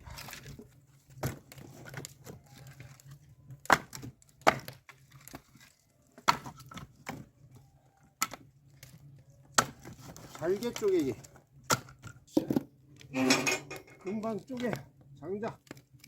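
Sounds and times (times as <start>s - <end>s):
axe chopping firewood: 1.1s - 2.1s, 3.6s - 5.4s, 6.2s - 7.2s, 8.2s - 8.5s, 9.5s - 12.6s.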